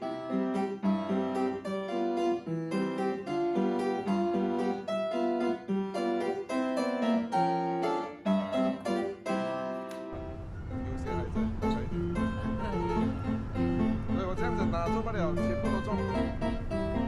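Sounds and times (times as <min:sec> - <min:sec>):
harpsichord-like keyboard music: 0:00.0 - 0:17.0
noisy low rumble: 0:10.2 - 0:17.0.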